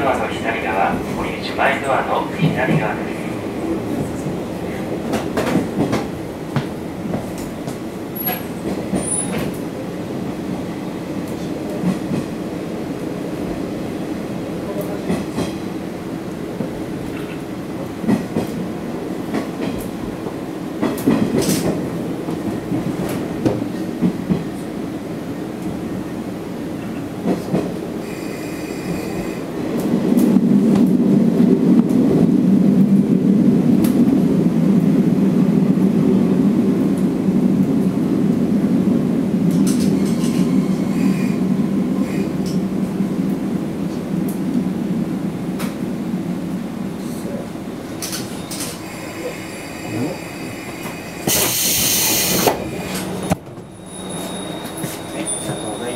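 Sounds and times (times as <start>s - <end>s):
train running rumble: 0.0s - 55.9s
high wheel squeals: 53.7s - 55.9s.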